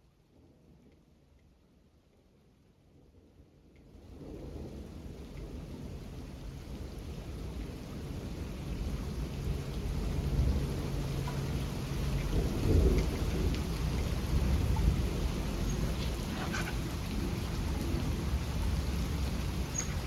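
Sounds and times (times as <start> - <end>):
rain falling: 0.0 - 20.0
thunder rumbling: 4.0 - 20.0.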